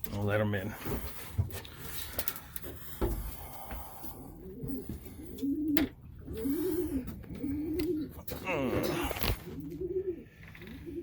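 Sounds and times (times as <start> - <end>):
pigeons cooing: 3.6 - 11.0.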